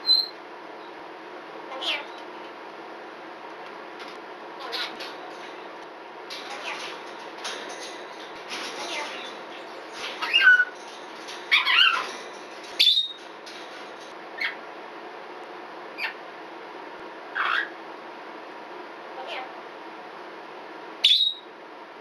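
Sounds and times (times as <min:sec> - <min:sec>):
parrot calling: 0:04.6 - 0:05.6, 0:08.6 - 0:13.3, 0:17.4 - 0:17.8.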